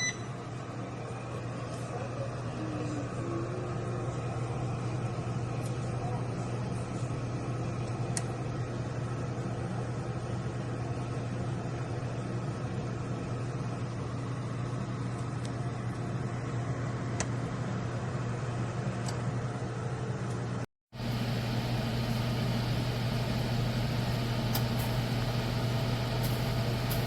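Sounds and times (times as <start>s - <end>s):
oven fan humming: 0.0s - 27.0s.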